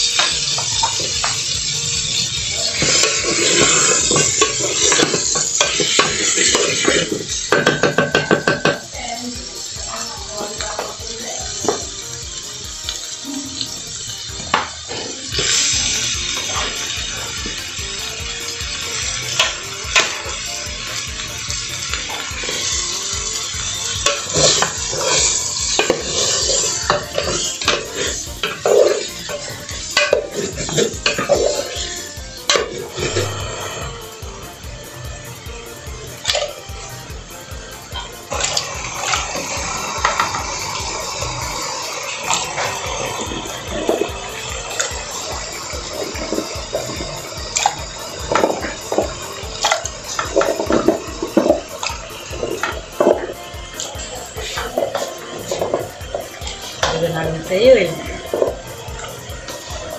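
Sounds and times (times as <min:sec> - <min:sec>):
vegetables sizzling in lard: 0:00.0 - 0:59.9
spoon scraping pot: 0:02.6 - 0:08.8
spoon knocking against pot: 0:03.6 - 0:08.9.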